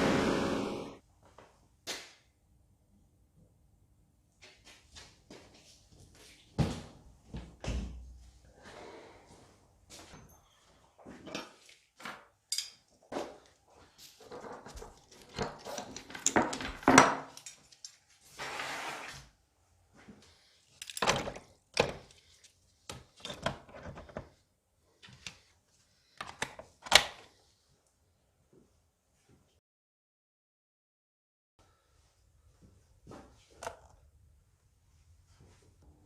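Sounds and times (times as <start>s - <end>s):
tools and parts clattering on bench: 10.0s - 13.5s, 14.1s - 18.2s, 20.7s - 22.2s, 22.9s - 24.3s.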